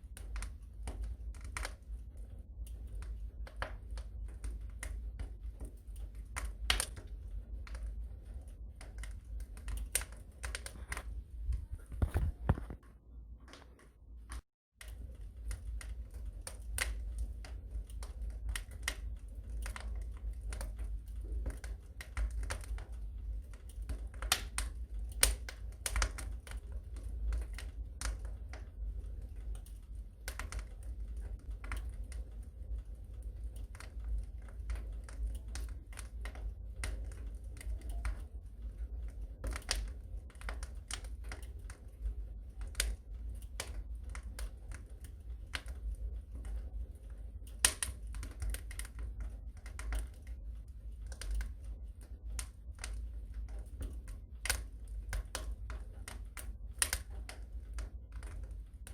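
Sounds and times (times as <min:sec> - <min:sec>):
low rumble: 0:00.0 - 0:13.4
wood fire crackling: 0:00.0 - 0:58.9.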